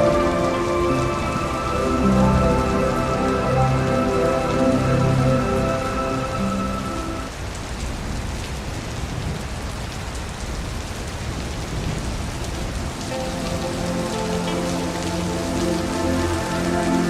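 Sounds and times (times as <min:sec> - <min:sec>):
soft sustained musical tone: 0:00.0 - 0:07.3, 0:12.9 - 0:17.0
rain falling into a puddle: 0:00.0 - 0:17.0.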